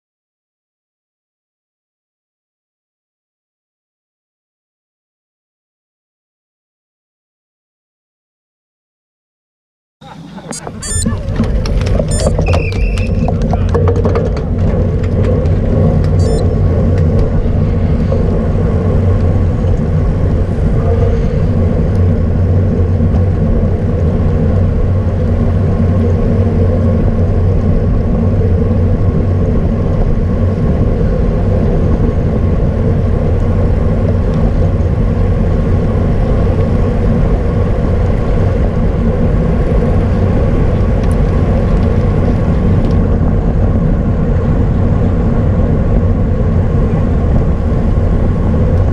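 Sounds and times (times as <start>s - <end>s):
bicycle road rumble: 10.0s - 48.9s
wind noise: 10.0s - 48.9s.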